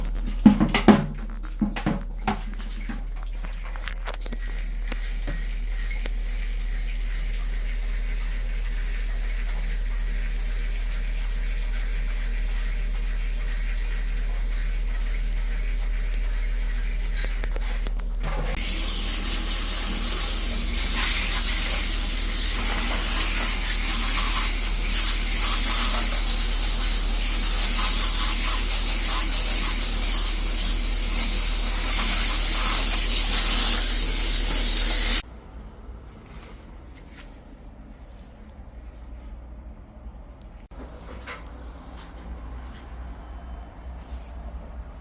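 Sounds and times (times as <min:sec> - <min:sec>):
pressure washer spraying: 0:18.5 - 0:35.2.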